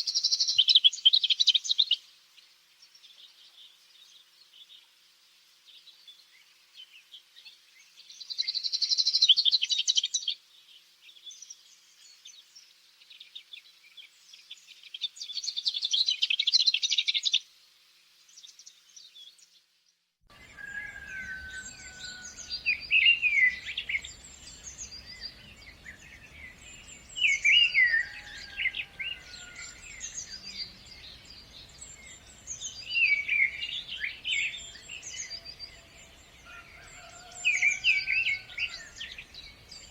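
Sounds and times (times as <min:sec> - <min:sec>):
bird song phrase: 0:05.7 - 0:17.4, 0:20.3 - 0:39.9.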